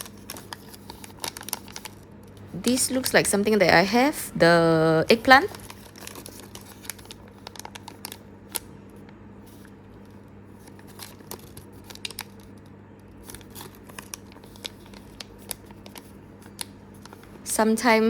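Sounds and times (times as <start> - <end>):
plastic packets crinkling and tearing: 0.0 - 2.1, 5.4 - 8.8, 10.0 - 17.4
faint low hum: 0.0 - 18.0.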